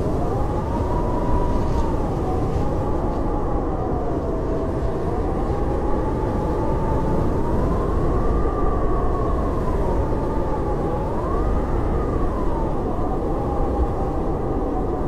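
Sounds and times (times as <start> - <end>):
blizzard wind howling: 0.0 - 15.0.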